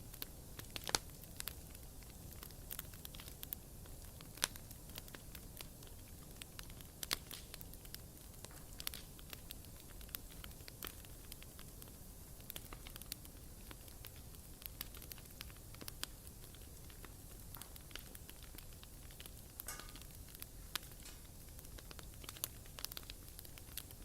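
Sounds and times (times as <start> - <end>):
low rumble of flame: 0.0 - 24.0
wood crackling and popping: 0.0 - 24.0.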